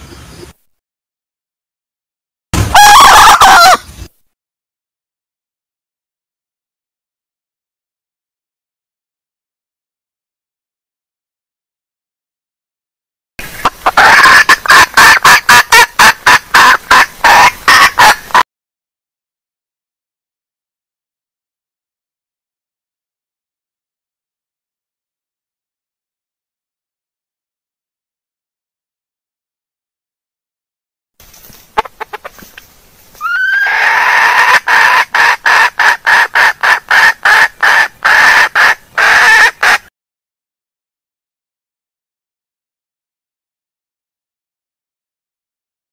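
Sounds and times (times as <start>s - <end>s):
hen clucking: 2.8s - 3.8s, 13.5s - 18.4s, 31.7s - 32.6s, 33.2s - 39.8s.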